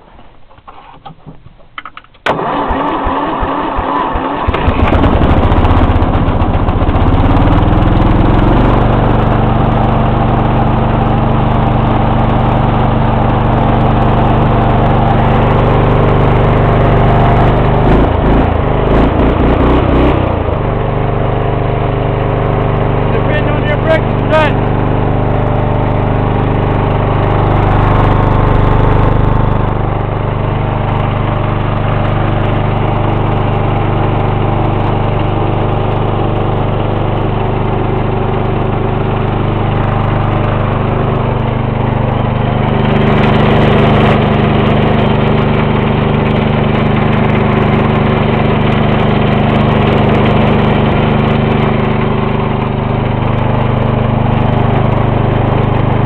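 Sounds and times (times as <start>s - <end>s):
riding mower engine running: 0.0s - 56.0s.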